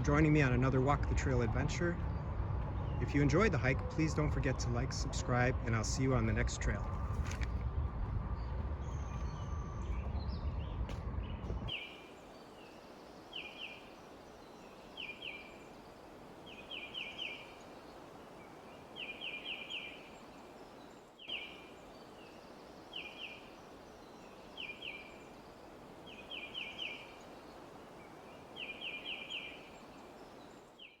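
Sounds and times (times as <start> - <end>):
low rumbling noise: 0.0 - 30.6
faint outdoor hiss: 11.7 - 31.0.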